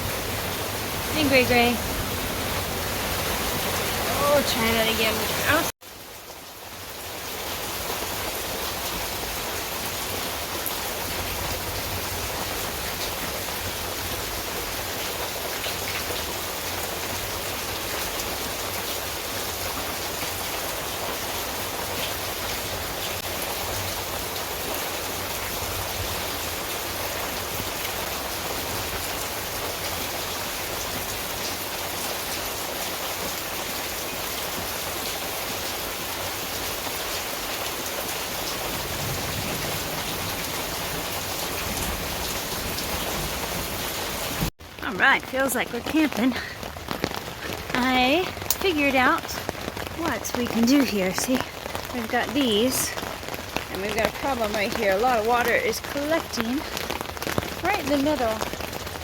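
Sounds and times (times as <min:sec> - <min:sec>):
heavy rain: 0:00.0 - 0:59.0
raindrop ticks: 0:44.7 - 0:59.0.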